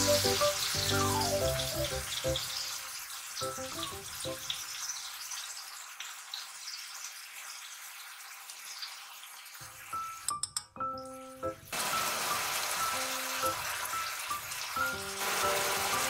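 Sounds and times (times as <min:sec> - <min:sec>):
soft background music: 0:00.0 - 0:02.8, 0:03.4 - 0:04.5, 0:09.9 - 0:16.0
meat sizzling in a frying pan: 0:00.0 - 0:10.2, 0:11.7 - 0:16.0.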